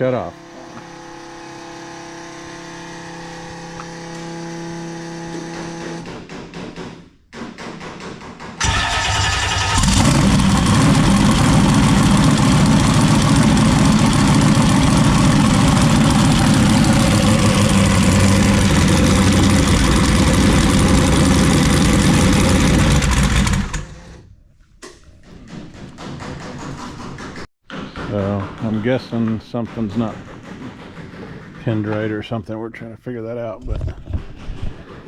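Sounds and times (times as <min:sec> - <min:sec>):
jet boat engine running: 0:08.6 - 0:24.2.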